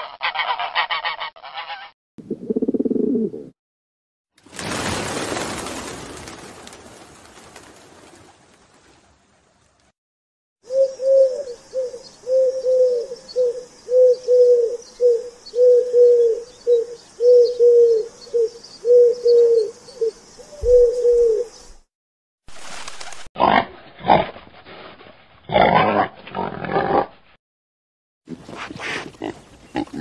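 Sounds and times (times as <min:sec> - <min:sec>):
pigeon cooing: 0:02.3 - 0:03.6, 0:10.7 - 0:21.5.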